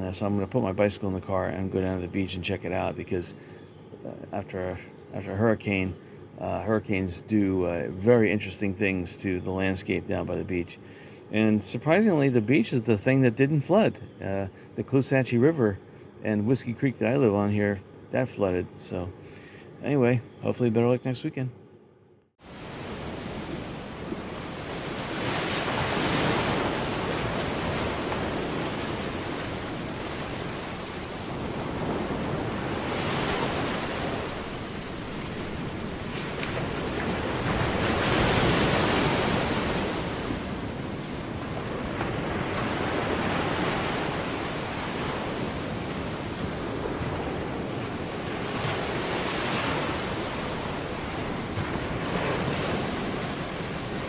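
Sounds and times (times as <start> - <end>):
surf breaking on a beach: 22.4 - 54.0.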